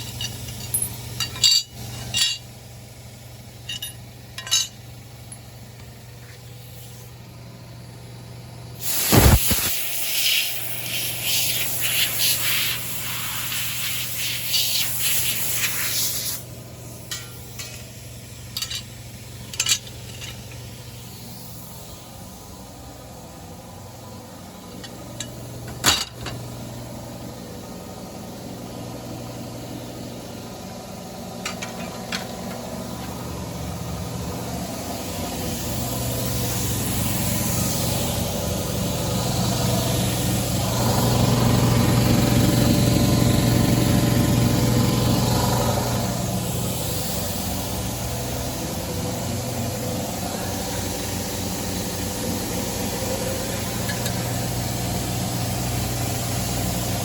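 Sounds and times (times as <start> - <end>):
lawnmower engine running: 16.6 - 57.0.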